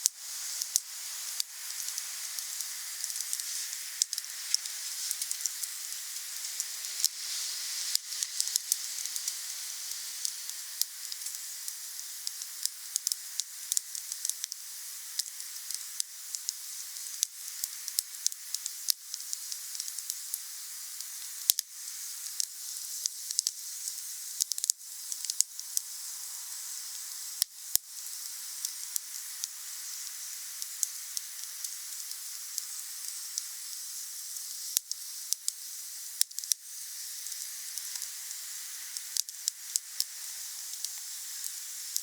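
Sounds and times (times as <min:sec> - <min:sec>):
steady hiss: 0:00.0 - 0:42.0
wood fire crackling and popping: 0:01.4 - 0:07.2, 0:38.9 - 0:42.0.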